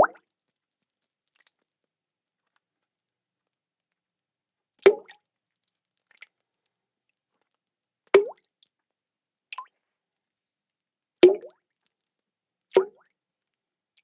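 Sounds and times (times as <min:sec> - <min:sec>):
water drops plopping: 0:08.2 - 0:08.4.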